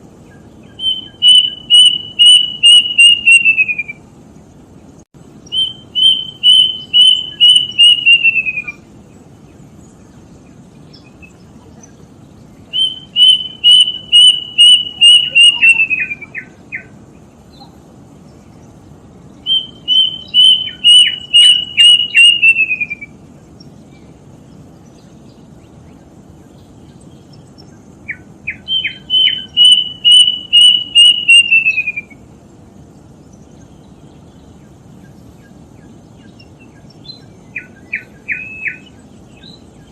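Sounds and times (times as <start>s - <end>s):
low background hiss: 0.0s - 39.9s
cuckoo whistled song: 0.3s - 4.0s, 5.5s - 8.9s, 12.7s - 16.9s, 19.4s - 23.2s, 28.1s - 32.2s, 36.2s - 39.6s.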